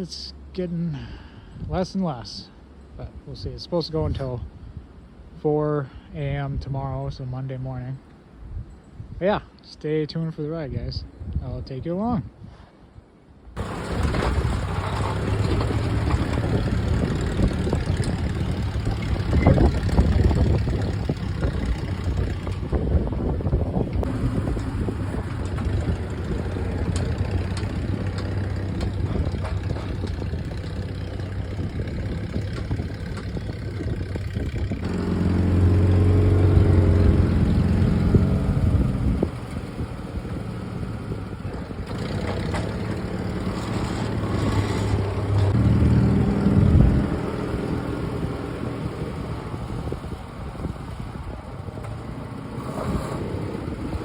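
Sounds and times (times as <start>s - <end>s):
jeep engine revving: 13.6s - 54.0s
plowing snow: 13.6s - 54.0s.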